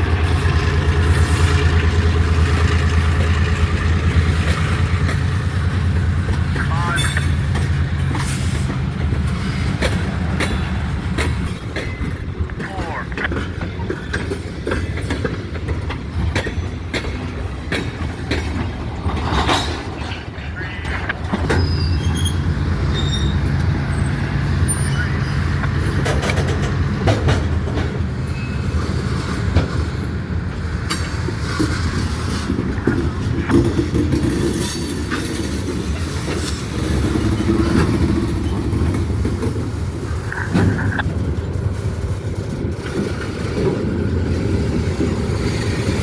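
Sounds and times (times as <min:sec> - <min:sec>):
train wheels clicking over rails: 0:00.0 - 0:46.0
faint wheel squeals: 0:21.4 - 0:25.6.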